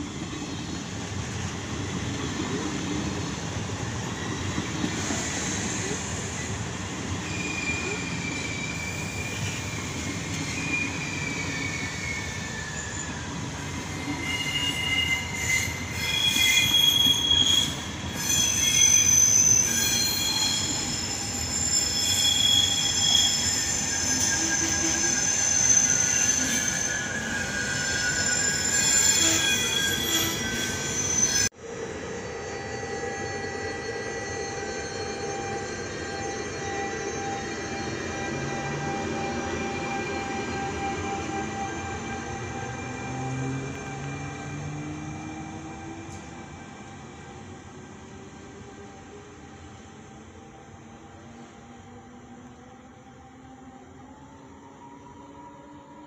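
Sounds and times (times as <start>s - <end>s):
train wheels rumbling on rails: 0.0s - 32.4s
wheel and brake squeals: 0.1s - 31.5s, 32.2s - 47.4s.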